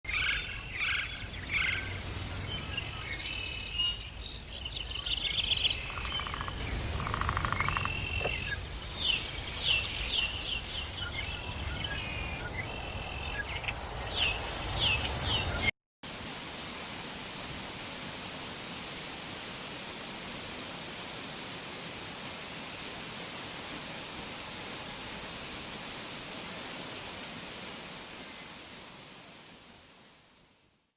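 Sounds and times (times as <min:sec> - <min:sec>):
songbirds chirping and trilling: 0:00.1 - 0:15.7
steady rushing hiss: 0:00.1 - 0:30.6.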